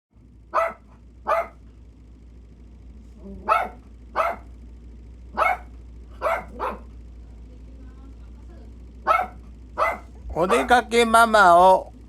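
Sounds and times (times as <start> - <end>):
small dog barking: 0.5 - 1.6, 3.2 - 4.5, 5.3 - 7.0, 9.0 - 10.8.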